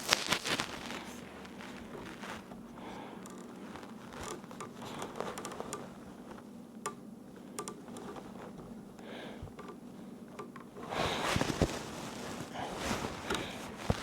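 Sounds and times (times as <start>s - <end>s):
faint steady hum: 0.0s - 14.0s
light clicks and taps of tools: 9.5s - 10.7s.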